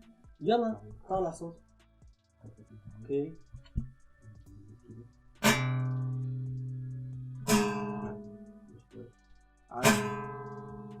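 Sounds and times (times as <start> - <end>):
plucked string notes: 4.6 - 9.1, 9.7 - 11.0.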